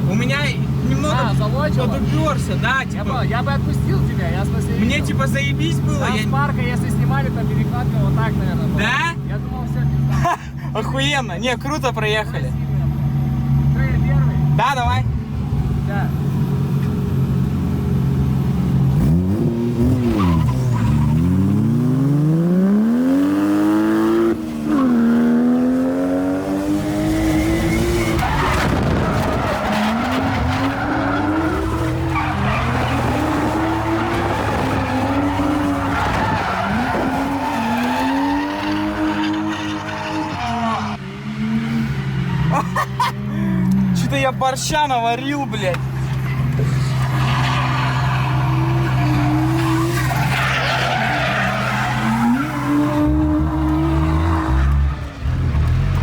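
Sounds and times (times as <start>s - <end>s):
tyres skidding and squealing: 0.0s - 56.0s
car engine revving: 12.0s - 56.0s.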